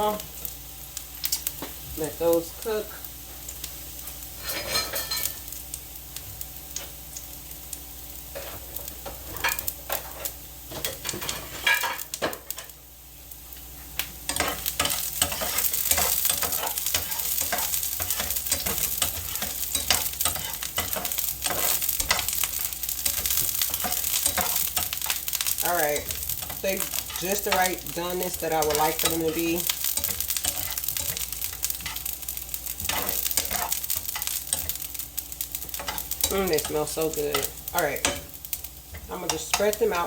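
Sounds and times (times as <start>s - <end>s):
onions sizzling in a skillet: 0.0s - 40.0s
utensil stirring and scraping: 14.3s - 34.8s.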